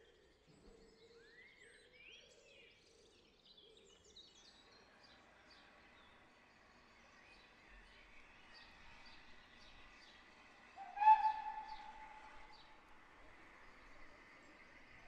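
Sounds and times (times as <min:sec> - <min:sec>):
small birds chirping: 0:03.8 - 0:13.8
loud short whistle-like tone: 0:10.9 - 0:12.3.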